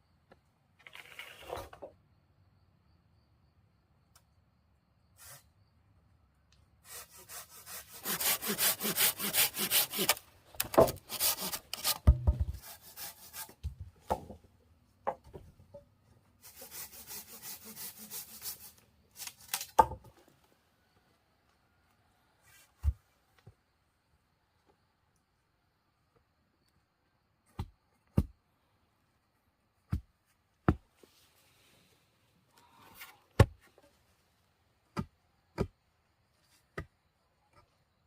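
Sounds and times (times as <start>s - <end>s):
hand saw cutting wood: 6.8s - 13.6s, 16.4s - 19.4s
dull knocks of wood: 10.6s - 11.0s, 11.9s - 12.6s.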